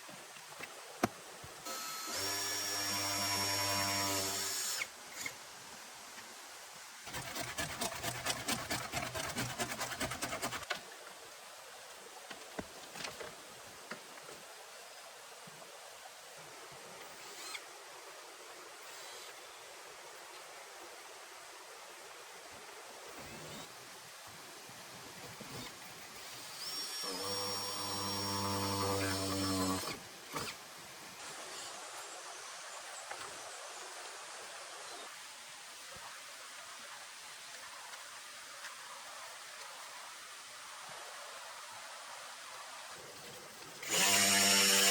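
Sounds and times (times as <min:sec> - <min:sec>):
tool rasping wood: 0:07.1 - 0:10.7
small motor running: 0:43.8 - 0:44.9.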